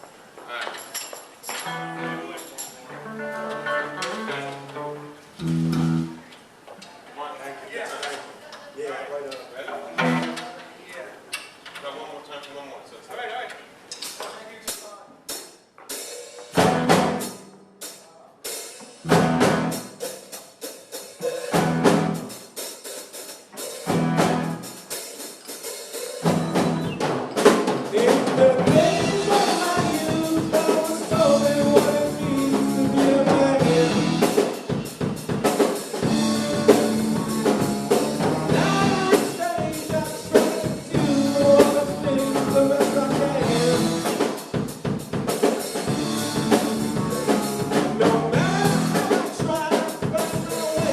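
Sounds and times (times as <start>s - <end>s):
rock band playing: 1.6s - 6.3s, 9.9s - 10.5s, 15.3s - 50.9s
chord and drum hits: 5.4s - 6.2s, 19.1s - 20.0s, 28.4s - 44.7s, 45.8s - 49.2s
person singing: 27.9s - 34.5s, 38.5s - 44.3s, 46.6s - 50.9s.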